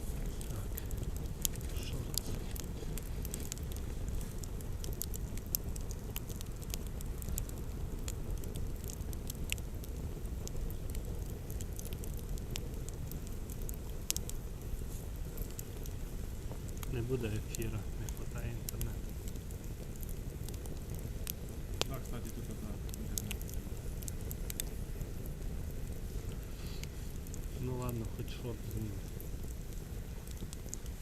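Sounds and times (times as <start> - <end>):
campfire crackling: 0.0 - 31.0
low fire rumble: 0.0 - 31.0
sharp pops of fire: 0.0 - 31.0.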